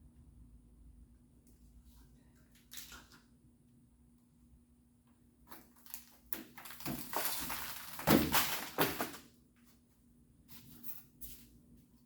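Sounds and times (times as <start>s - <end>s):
scraping and crunching insulation: 5.5s - 9.3s.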